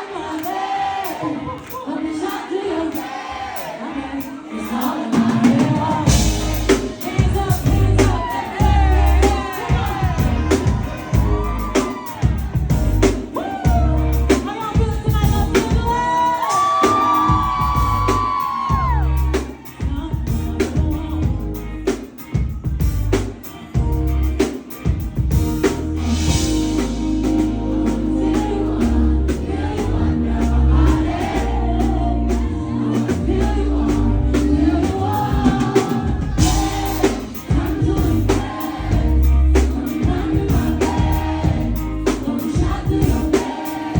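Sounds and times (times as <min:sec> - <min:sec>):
woman singing: 0:03.8 - 0:11.2, 0:13.3 - 0:21.8, 0:27.8 - 0:43.9
pop backing track with bass beat: 0:04.5 - 0:43.9.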